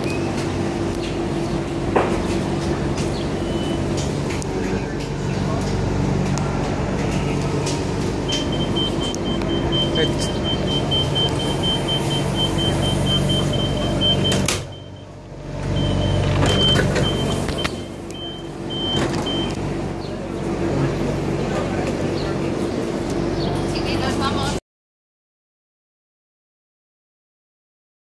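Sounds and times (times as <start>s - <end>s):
train electric hum: 0.0s - 24.6s
high warning tone: 8.2s - 19.6s.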